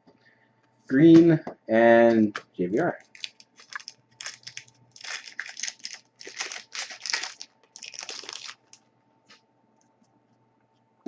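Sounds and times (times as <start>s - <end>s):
foil wrapper tearing and crinkling: 3.0s - 8.8s.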